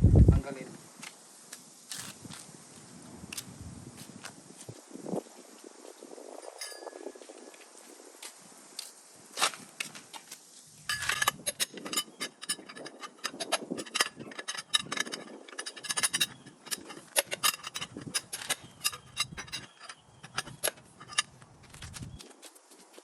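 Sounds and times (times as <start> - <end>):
wrench metal clicks and rattles: 10.9 - 22.2.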